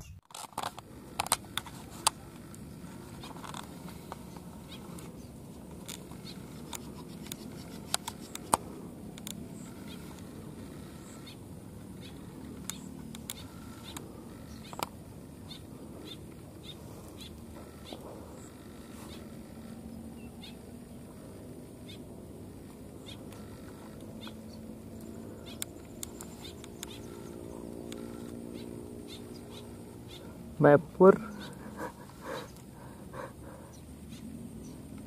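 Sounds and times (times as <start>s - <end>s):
low pond background: 0.0s - 35.0s
sharp bird chirps and clicks: 4.1s - 21.0s, 22.9s - 30.4s, 31.2s - 32.7s.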